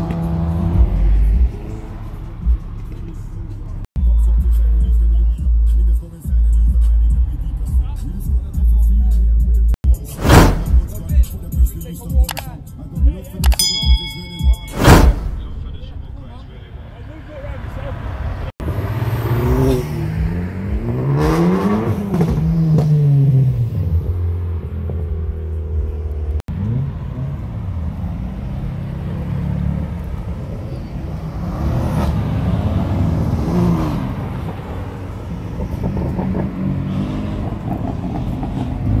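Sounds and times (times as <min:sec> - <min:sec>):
car engine revving: 0:14.8 - 0:39.0.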